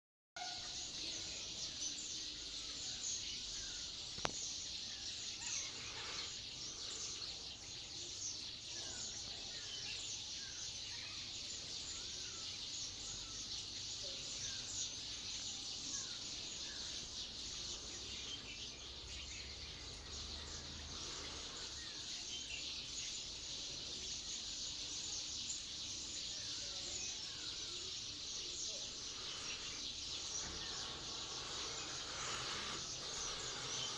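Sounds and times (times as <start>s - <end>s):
high-pitched chirring chorus: 25.7s - 33.9s.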